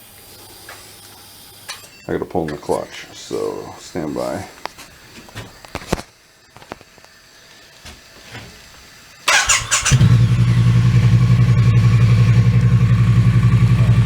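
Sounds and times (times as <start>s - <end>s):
motorcycle engine starting and idling: 9.2s - 14.0s.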